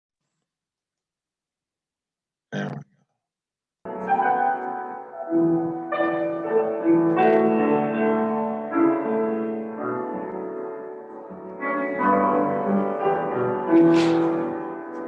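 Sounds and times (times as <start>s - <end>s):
piano playing slow chords: 3.9s - 15.0s.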